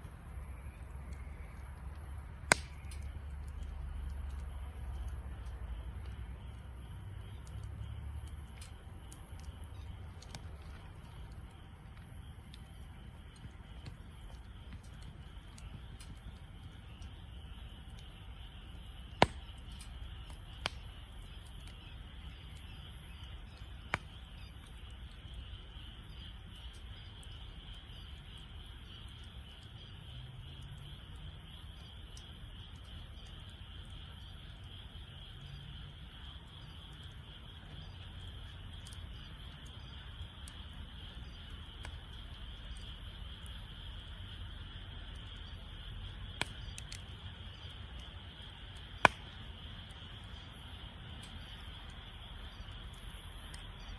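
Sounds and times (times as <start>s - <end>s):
firewood popping: 0.0s - 24.8s, 44.1s - 50.3s, 51.0s - 53.9s
campfire burning: 0.0s - 30.1s, 35.9s - 53.9s
insect chirring: 0.0s - 53.9s.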